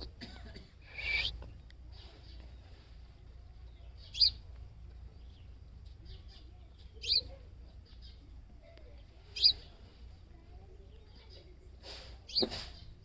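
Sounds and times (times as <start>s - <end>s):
sparrow chirping: 0.9s - 10.0s, 12.3s - 13.0s.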